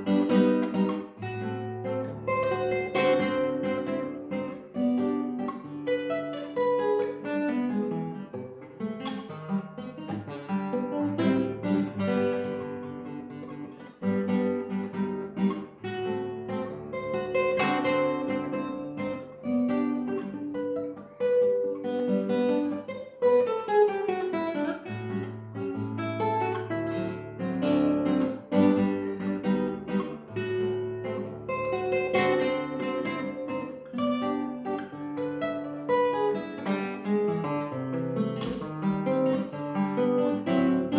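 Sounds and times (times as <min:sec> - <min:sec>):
acoustic guitar waltz: 0:00.0 - 0:40.9.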